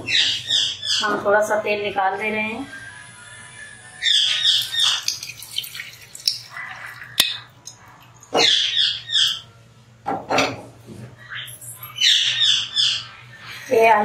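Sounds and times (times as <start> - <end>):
bird harsh high calls: 2.7 - 7.6, 8.3 - 9.5, 11.2 - 13.8.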